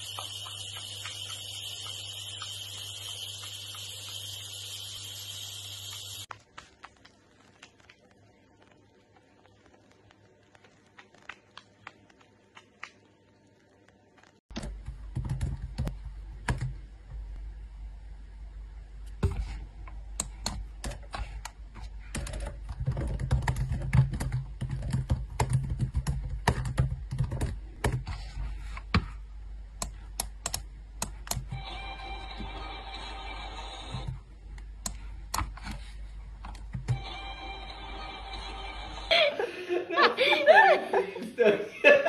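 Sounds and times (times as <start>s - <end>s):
laptop keyboard typing: 10.5s - 13.0s, 14.6s - 16.8s, 22.1s - 28.1s.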